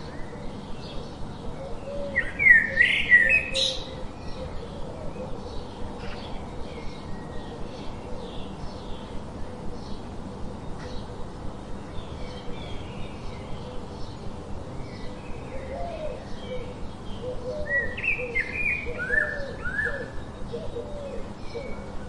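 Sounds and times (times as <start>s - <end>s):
birds chirping and calling: 0.0s - 22.0s.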